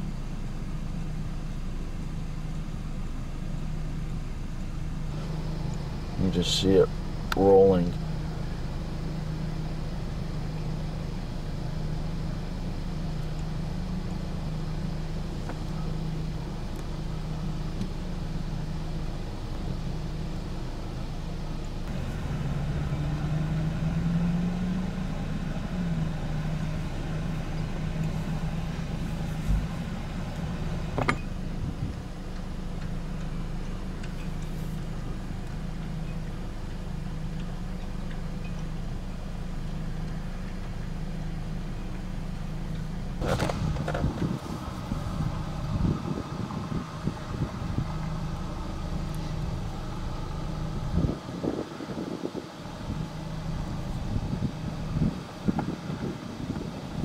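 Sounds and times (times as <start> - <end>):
vehicle engine humming: 0.0 - 57.0.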